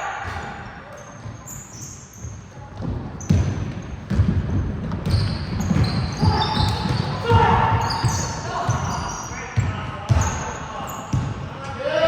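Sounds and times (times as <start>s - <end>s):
shoe squeaks: 0.9s - 4.2s, 5.0s - 11.2s
basketball bouncing on floor: 2.8s - 8.9s, 11.1s - 11.4s.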